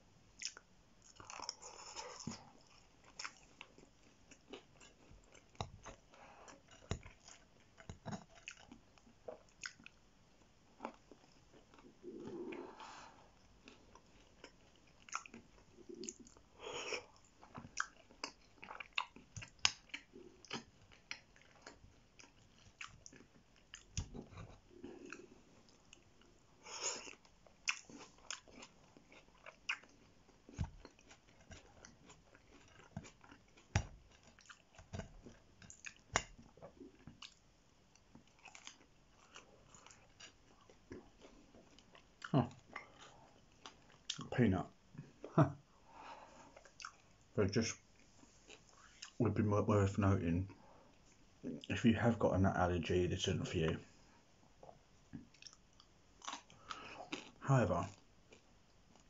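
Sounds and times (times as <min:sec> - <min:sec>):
wet chewing mouth clicks: 0:13.7 - 0:25.3.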